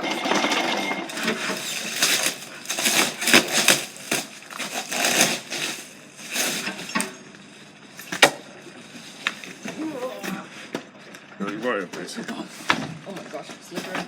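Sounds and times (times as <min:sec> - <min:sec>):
boxed goods handled by hand: 0:01.2 - 0:07.2.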